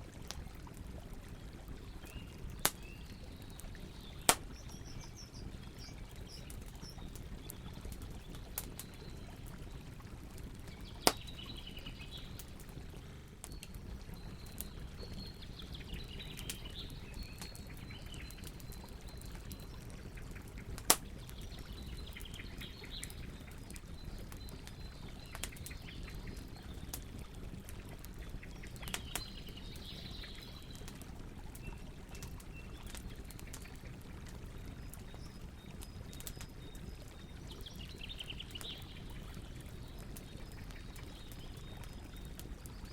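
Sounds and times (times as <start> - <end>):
campfire crackling: 0.0 - 42.9
birds singing: 1.4 - 9.9, 10.6 - 12.7, 13.4 - 27.6, 28.2 - 30.9, 34.6 - 42.9
sharp pops from fire: 2.6 - 3.0, 4.2 - 9.0, 10.9 - 12.6, 16.2 - 18.8, 20.6 - 21.4, 28.8 - 29.4.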